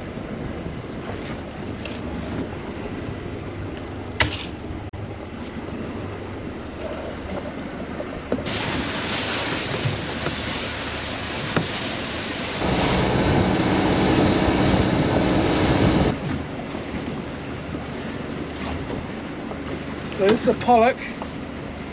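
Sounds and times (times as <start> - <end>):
boat machinery rushing hum: 0.0 - 21.9
low machinery hum: 1.5 - 18.3.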